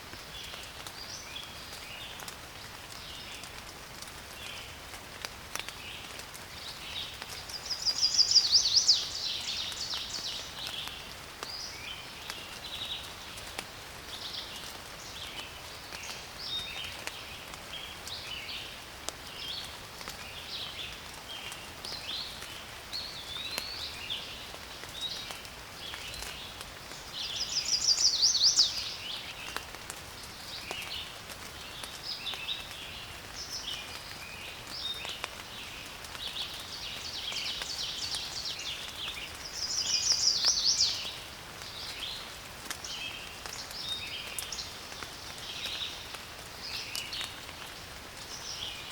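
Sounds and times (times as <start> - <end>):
soft steady hiss: 0.0 - 48.9
bird songs of rapid notes: 5.5 - 48.9
birds chirping and whistling: 7.6 - 10.3, 27.2 - 29.0, 39.6 - 41.2.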